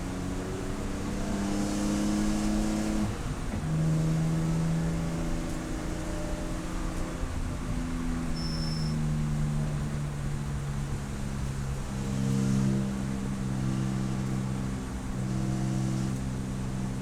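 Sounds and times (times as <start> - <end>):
race car engine: 0.0 - 8.4, 9.0 - 17.0
short high beep: 8.4 - 9.0.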